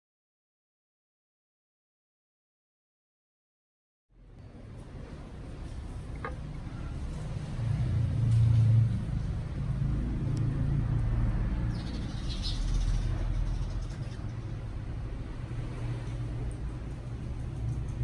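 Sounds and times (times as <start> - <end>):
low engine rumble: 4.2 - 18.0.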